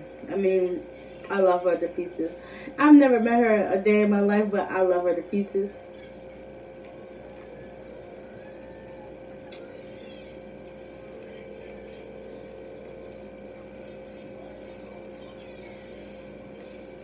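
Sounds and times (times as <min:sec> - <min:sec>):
electrical hum: 0:00.0 - 0:17.0
soft chewing of sandwich: 0:05.9 - 0:17.0.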